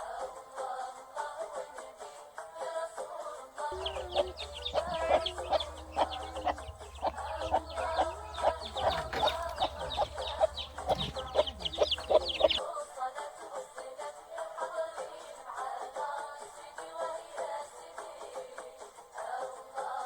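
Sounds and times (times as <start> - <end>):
background music: 3.1 - 20.0
chickens clucking: 3.7 - 12.6
low hum: 3.8 - 12.6.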